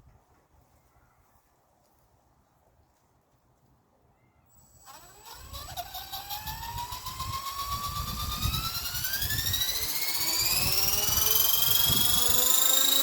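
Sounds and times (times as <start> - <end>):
rc helicopter motor whine: 4.5 - 13.0
low rumble of rotor wash: 5.0 - 13.0.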